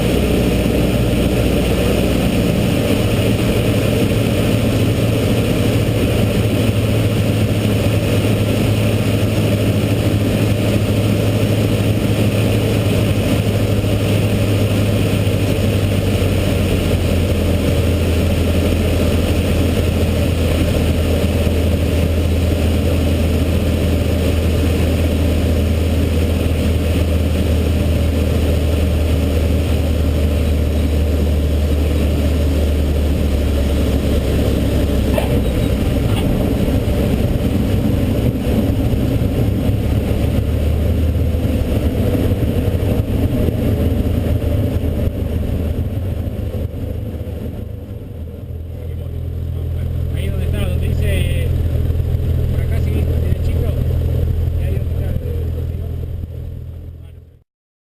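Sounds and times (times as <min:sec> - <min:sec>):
light aircraft engine and propeller: 0:00.0 - 0:57.4.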